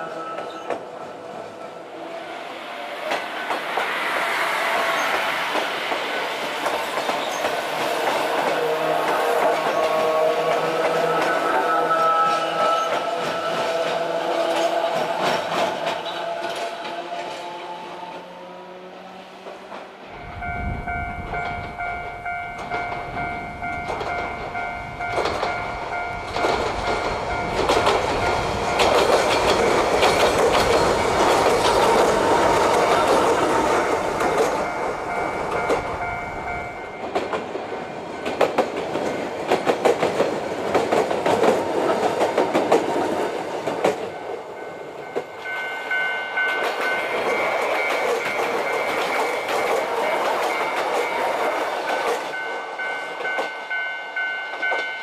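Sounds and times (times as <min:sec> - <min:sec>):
train rumbling by: 0:00.0 - 0:55.0
level-crossing alarm ringing: 0:07.2 - 0:16.7, 0:20.2 - 0:39.8, 0:41.3 - 0:55.0
wheels clicking over rail joints: 0:21.2 - 0:52.5.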